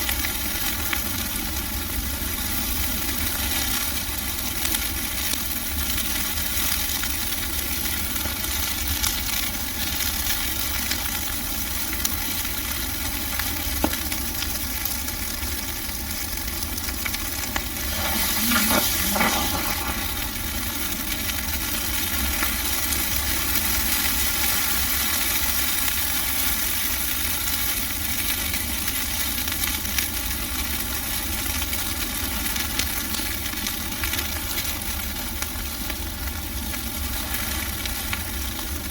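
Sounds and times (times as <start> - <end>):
bonfire crackling with pops: 6.7 - 26.0.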